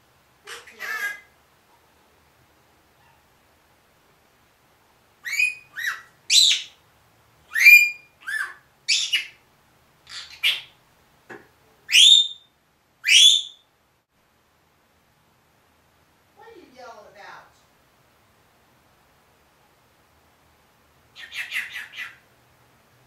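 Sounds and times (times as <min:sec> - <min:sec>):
parrot whistled calls: 0:05.2 - 0:06.8, 0:07.5 - 0:09.4, 0:11.9 - 0:13.7, 0:21.2 - 0:22.2.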